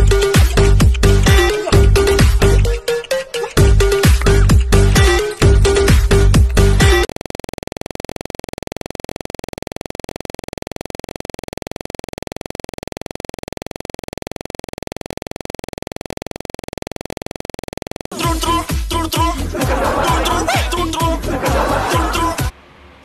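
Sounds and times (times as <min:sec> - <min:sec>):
electronic dance music: 0:00.0 - 0:07.1, 0:18.1 - 0:22.5
rapid electronic buzz: 0:00.0 - 0:22.5.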